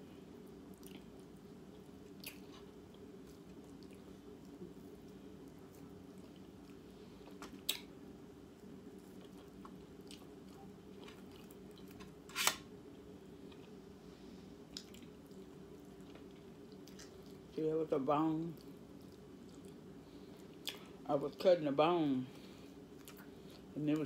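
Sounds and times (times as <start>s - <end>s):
steady low hum: 0.0s - 24.0s
faint chewing: 0.6s - 7.9s, 8.5s - 12.1s, 14.6s - 17.6s, 18.4s - 21.5s, 22.4s - 24.0s.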